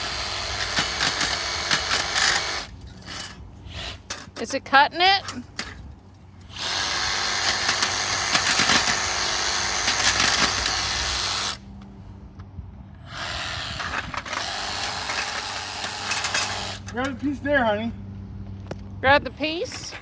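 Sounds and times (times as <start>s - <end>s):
power tool cutting sheet metal: 0.0s - 4.2s, 6.4s - 11.6s, 13.1s - 17.0s.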